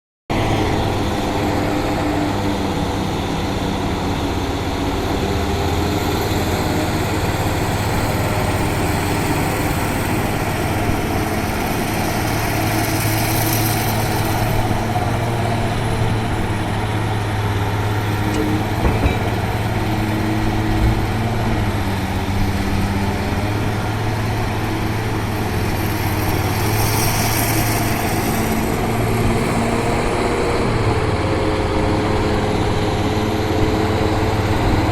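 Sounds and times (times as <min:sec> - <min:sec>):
excavator engine running: 0:00.3 - 0:34.9
short knocks: 0:18.3 - 0:21.1.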